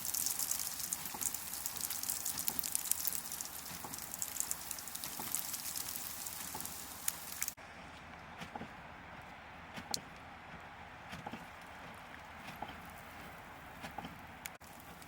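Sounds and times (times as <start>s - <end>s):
crackling patter of precipitation: 0.0s - 7.6s, 11.4s - 15.0s.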